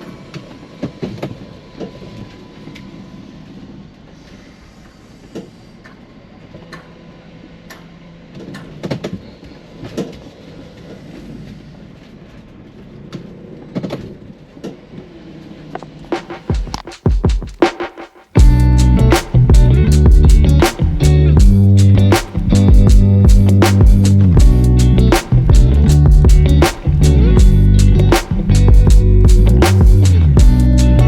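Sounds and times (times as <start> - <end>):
steady low hum: 18.4 - 31.0.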